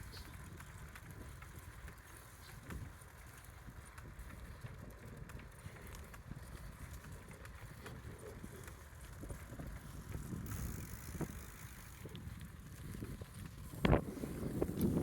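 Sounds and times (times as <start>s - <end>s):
bicycle tyres rumbling on gravel: 0.0s - 15.0s
wind on microphone: 3.6s - 15.0s.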